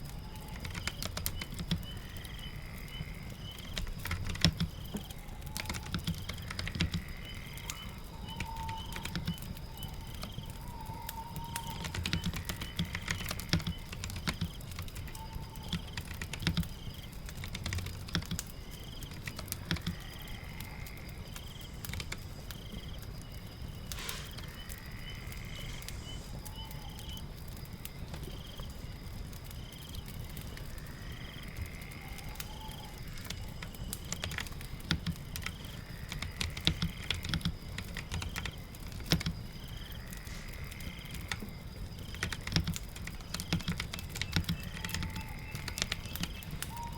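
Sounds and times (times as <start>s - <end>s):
rain patter: 0.0s - 46.9s
keyboard typing: 3.6s - 7.0s, 7.7s - 9.5s, 11.4s - 18.5s, 19.2s - 20.1s, 36.2s - 39.4s, 42.1s - 46.7s.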